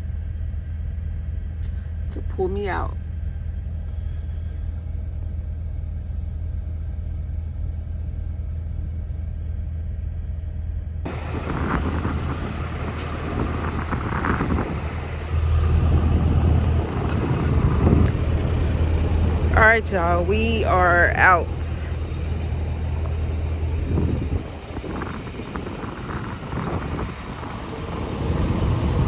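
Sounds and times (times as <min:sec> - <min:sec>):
diesel truck engine rumbling: 0:00.0 - 0:29.0
rush of noise: 0:11.1 - 0:29.0.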